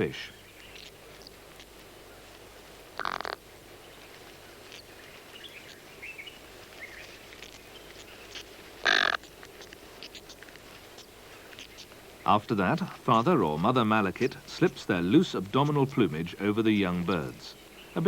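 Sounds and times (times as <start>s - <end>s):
nestlings chirping faintly: 0.0s - 18.0s
harsh bird calls: 11.0s - 18.0s.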